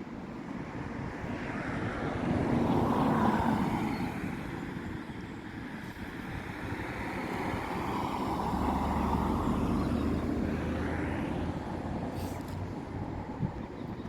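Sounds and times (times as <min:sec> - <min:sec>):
passing vehicle rumbling: 0:06.2 - 0:13.3.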